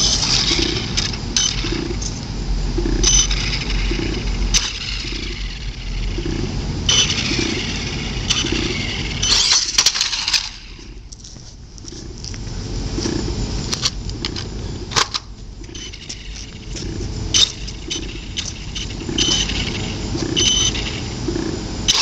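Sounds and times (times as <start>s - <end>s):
electric motor whining: 0.0s - 11.2s, 15.6s - 22.0s
steady rumble: 0.0s - 22.0s.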